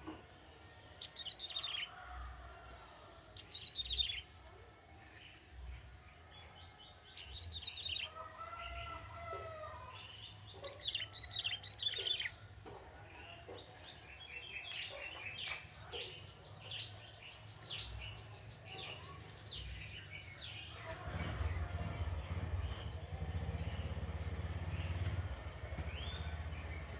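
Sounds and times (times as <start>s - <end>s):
bird singing high chirping trills: 3.4s - 4.3s, 10.2s - 12.4s.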